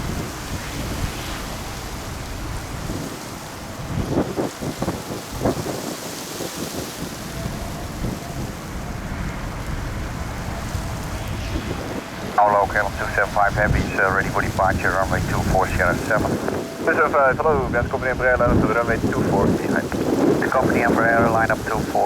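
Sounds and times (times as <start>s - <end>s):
gusty wind buffeting microphone: 0.0s - 22.0s.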